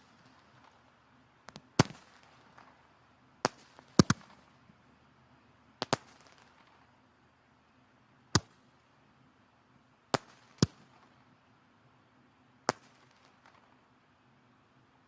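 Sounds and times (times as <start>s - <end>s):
faint steady background: 0.0s - 15.0s
firewood crackling and popping: 3.4s - 4.7s, 5.8s - 7.0s.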